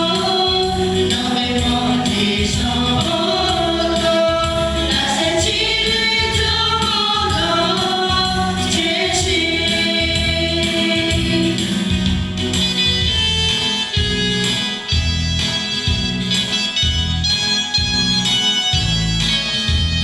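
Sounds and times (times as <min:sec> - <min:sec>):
group singing worship song: 0:00.0 - 0:12.0
instrumental accompaniment with beat: 0:00.0 - 0:20.0.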